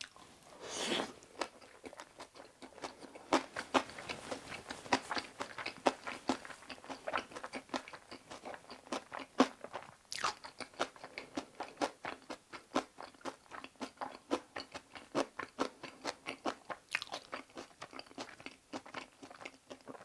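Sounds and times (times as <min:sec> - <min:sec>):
crunchy chewing: 0:00.0 - 0:20.0.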